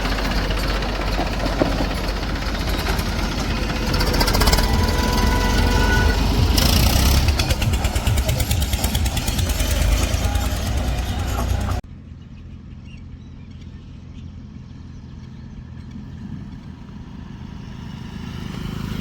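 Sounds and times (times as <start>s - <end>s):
heavy machine diesel engine: 0.0s - 11.9s.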